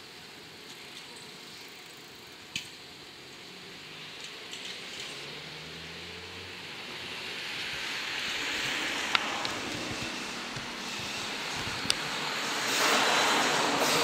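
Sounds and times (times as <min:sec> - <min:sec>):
electric train running: 0:06.0 - 0:14.0.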